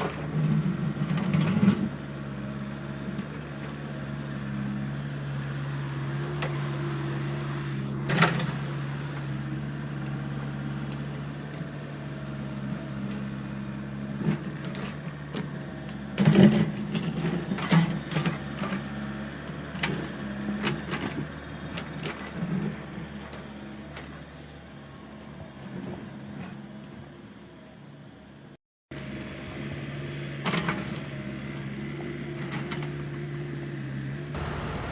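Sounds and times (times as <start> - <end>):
construction machinery diesel engine: 0.0 - 34.9.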